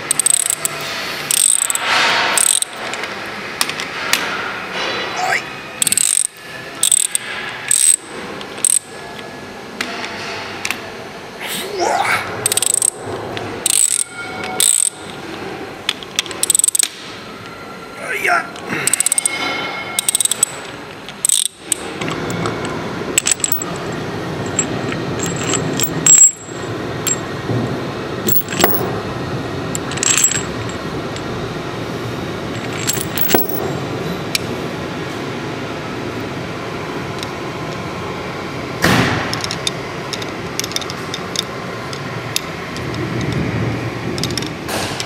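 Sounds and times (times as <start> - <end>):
steady background noise: 0.0 - 45.0
hand tools clinking on metal: 32.7 - 33.6.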